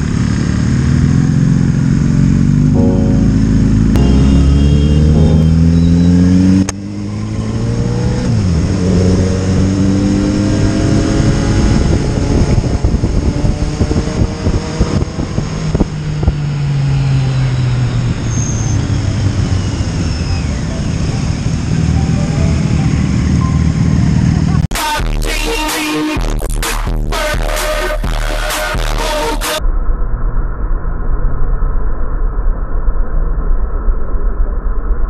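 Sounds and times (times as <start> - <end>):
wind and road noise: 0.0 - 2.7, 4.6 - 24.6
motorcycle engine accelerating: 0.0 - 24.7.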